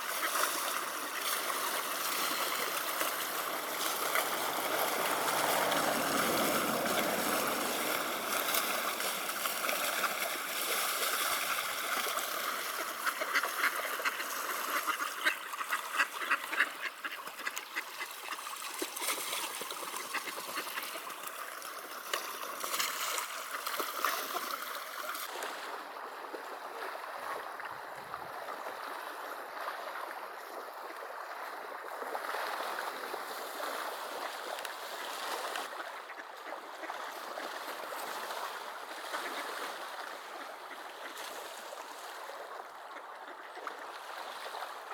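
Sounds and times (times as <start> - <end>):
ducks quacking: 0.0 - 10.7, 12.6 - 18.6, 19.8 - 21.3, 35.7 - 37.5
ducks splashing: 0.0 - 44.9
river water flowing: 0.0 - 44.9.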